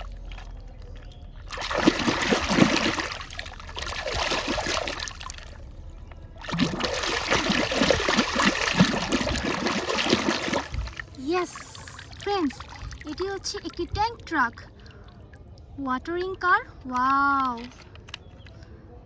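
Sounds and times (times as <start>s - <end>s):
water splashing and trickling: 0.0s - 18.6s.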